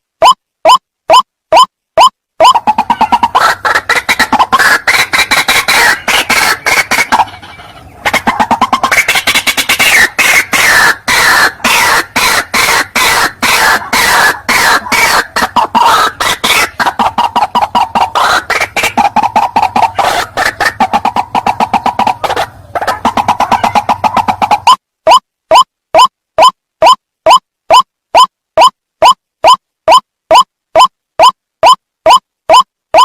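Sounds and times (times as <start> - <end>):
waterhen harsh croaking calls: 2.4 - 25.2.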